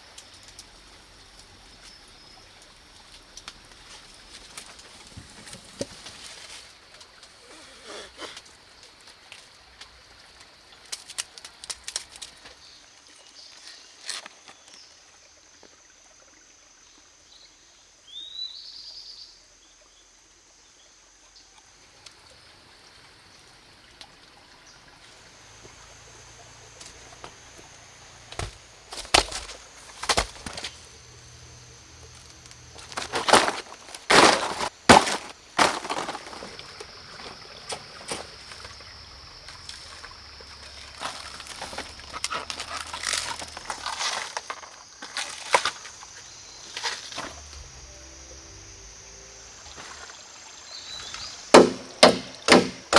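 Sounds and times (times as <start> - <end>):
steady high-pitched drone: 47.1 - 50.1
sharp knocks: 51.5 - 52.9.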